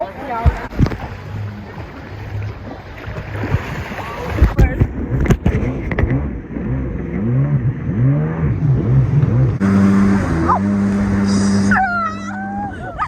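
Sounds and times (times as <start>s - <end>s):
jet ski engine running: 4.0s - 13.0s
person calling out: 10.5s - 12.8s.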